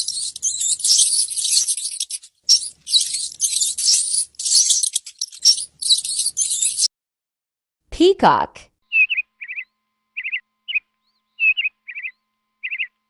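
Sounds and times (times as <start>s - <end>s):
mouse scratching: 0.0s - 6.9s
mouse squeaking: 0.0s - 6.9s, 8.9s - 9.6s, 11.4s - 12.9s.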